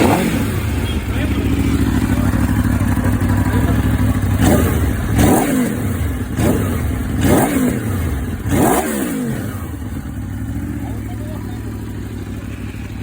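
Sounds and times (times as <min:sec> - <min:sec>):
motorcycle idling and revving: 0:00.0 - 0:13.0.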